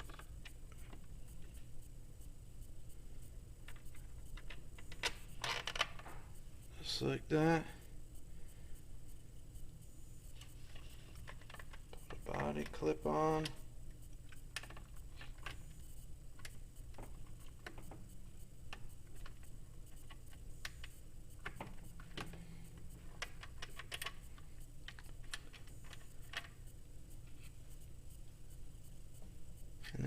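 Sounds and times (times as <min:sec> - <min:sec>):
steady low hum: 0:00.0 - 0:30.0
small parts clicking and tapping: 0:03.6 - 0:06.2, 0:10.4 - 0:27.4.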